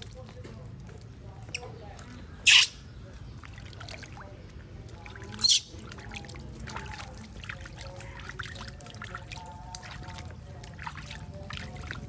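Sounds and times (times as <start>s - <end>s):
water pouring and trickling: 3.3s - 12.0s.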